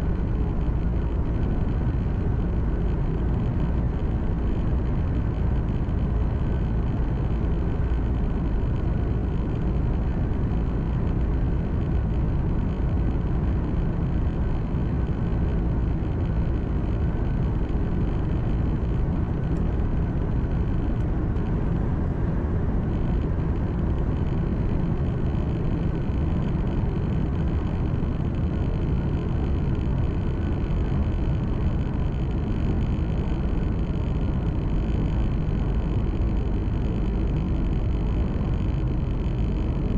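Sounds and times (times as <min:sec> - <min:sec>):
truck engine hum: 0:00.0 - 0:39.9.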